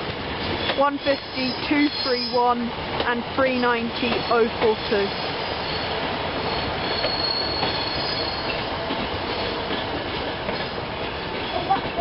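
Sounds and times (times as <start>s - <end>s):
train wheels rumbling on rail: 0.0s - 12.0s
high-pitched wheel squeal: 6.5s - 8.6s.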